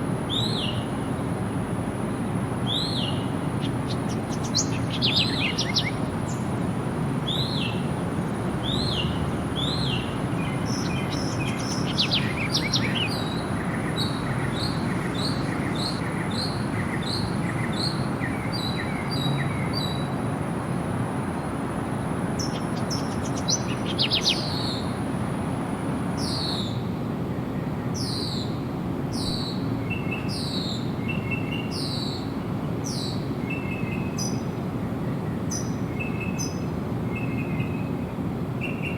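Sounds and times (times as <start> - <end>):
birds calling and singing: 0.3 - 1.0, 2.6 - 6.6, 7.2 - 20.1, 22.3 - 25.0, 35.2 - 38.9.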